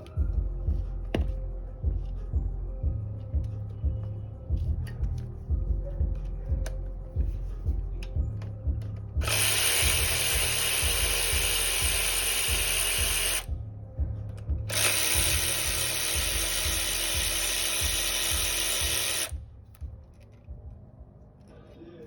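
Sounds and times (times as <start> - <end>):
handheld power tool running: 9.2 - 13.5, 14.7 - 19.4.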